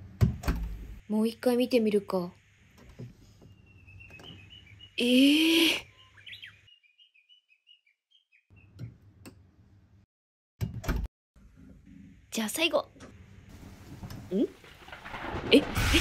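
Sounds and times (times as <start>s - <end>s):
small birds chirping: 3.1s - 9.1s.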